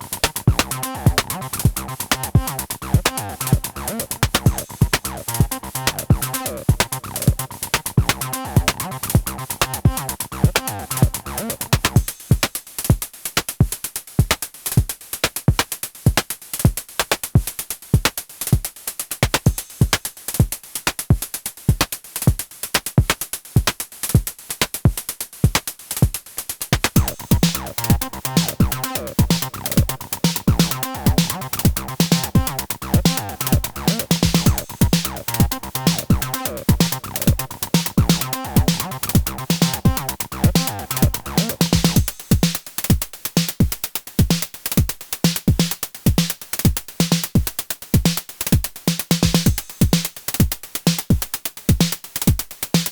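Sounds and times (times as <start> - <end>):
synth bass line: 0.0 - 12.0, 27.0 - 42.0
drum machine beat: 0.0 - 52.9.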